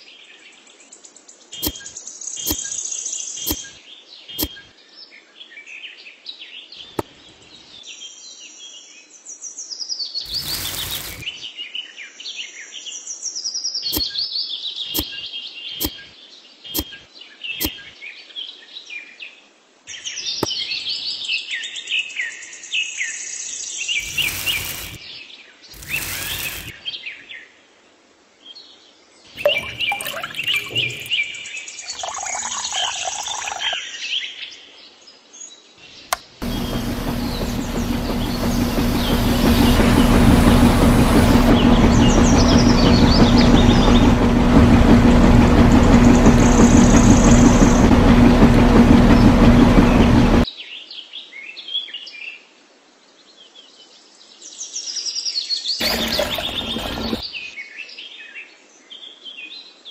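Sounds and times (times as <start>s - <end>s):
small birds chirping: 10.2s - 11.5s, 29.4s - 33.9s
bursts of rough noise: 10.3s - 11.4s, 24.0s - 25.0s, 36.4s - 50.4s, 55.8s - 57.2s.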